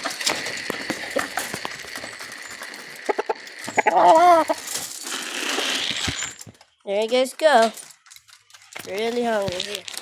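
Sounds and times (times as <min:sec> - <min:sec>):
chickens clucking: 0:00.3 - 0:04.7
chicken squawk: 0:03.0 - 0:04.6.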